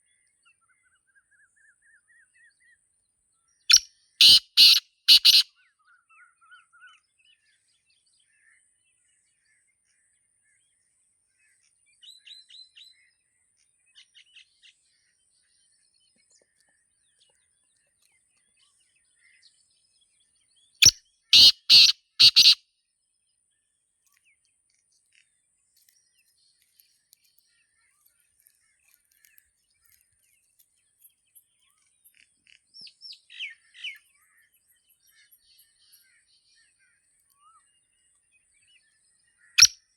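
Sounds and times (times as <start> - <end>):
small birds chirping: 3.3 - 8.8, 11.5 - 22.6, 23.3 - 39.9
bird calling four quick notes: 3.7 - 5.4.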